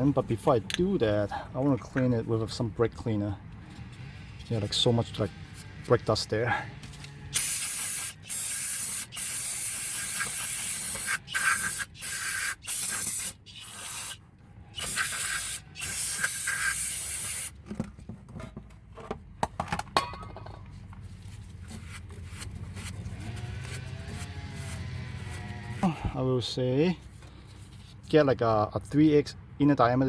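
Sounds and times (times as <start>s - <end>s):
aerosol spray hissing: 7.4s - 14.2s, 14.8s - 17.5s.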